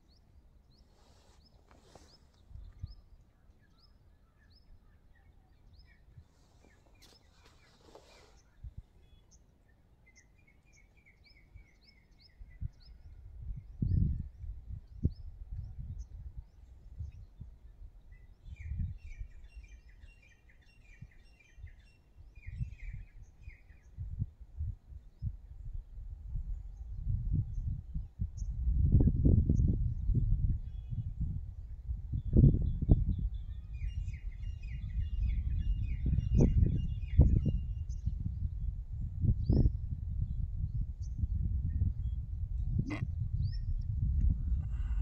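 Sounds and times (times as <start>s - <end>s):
small birds chirping: 0.0s - 13.0s
soft low bird twittering: 0.0s - 45.0s.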